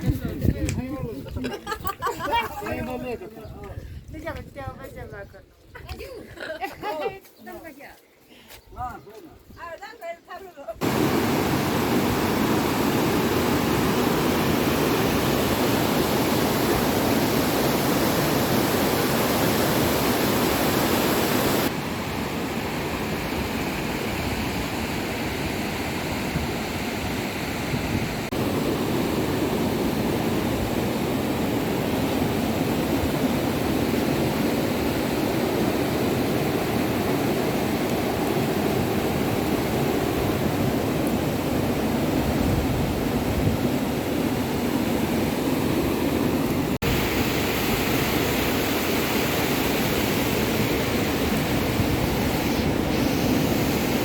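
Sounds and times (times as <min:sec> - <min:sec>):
rushing water: 0:10.8 - 0:54.0.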